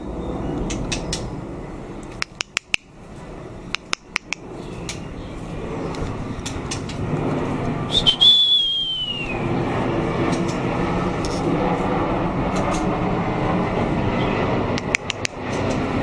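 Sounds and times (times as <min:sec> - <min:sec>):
rumbling background noise: 0:00.0 - 0:16.0
high descending whistle: 0:07.9 - 0:09.5.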